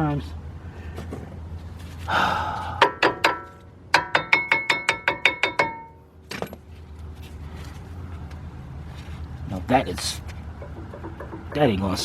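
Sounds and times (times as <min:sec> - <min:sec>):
ringing metal-on-metal taps: 0:02.8 - 0:06.0, 0:10.6 - 0:11.8
brake pad knocking on metal: 0:10.5 - 0:11.8.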